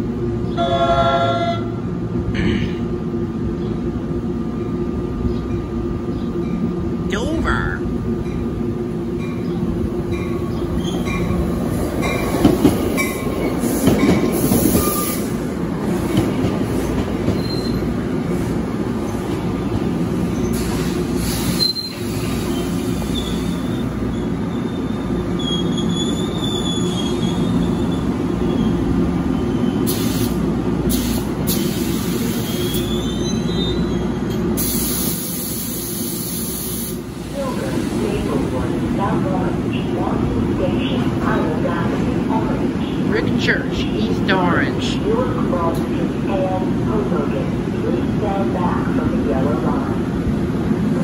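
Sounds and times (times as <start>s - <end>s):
train wheels rumbling on rail: 7.8s - 51.0s
high wheel squeals: 21.4s - 28.8s.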